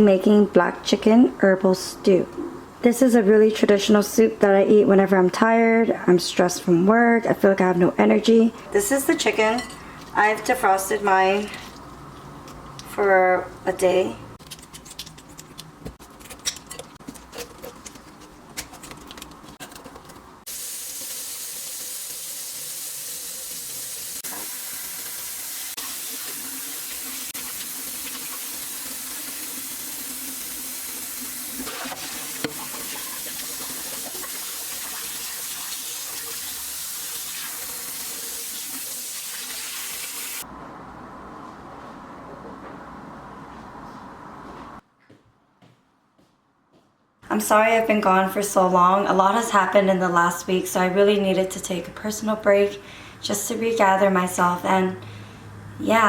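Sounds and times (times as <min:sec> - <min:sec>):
tap water running into sink: 0:20.5 - 0:40.4.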